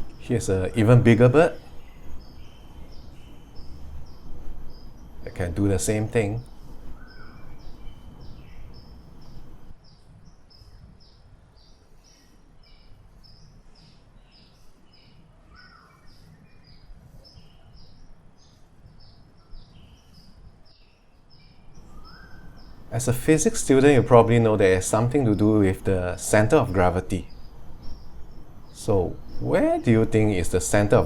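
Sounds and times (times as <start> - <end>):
birds chirping: 0.0 - 31.0
lower bird calls: 0.0 - 31.0
low background rumble: 21.6 - 31.0.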